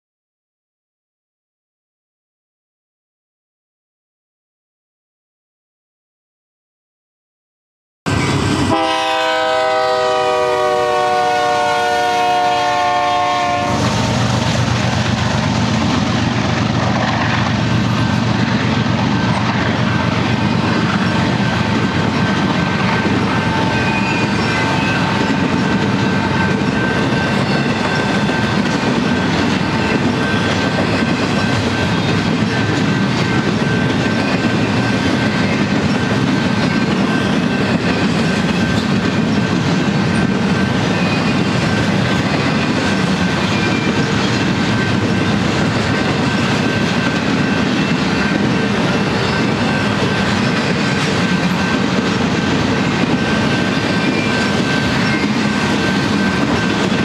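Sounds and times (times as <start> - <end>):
train wheels clattering: 8.1 - 57.0
train air horn: 8.6 - 14.0.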